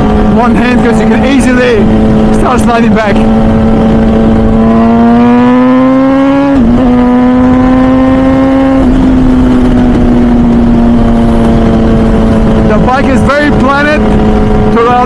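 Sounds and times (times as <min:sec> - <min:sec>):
motorcycle engine revving high: 0:00.0 - 0:15.0
wind rush: 0:00.0 - 0:15.0.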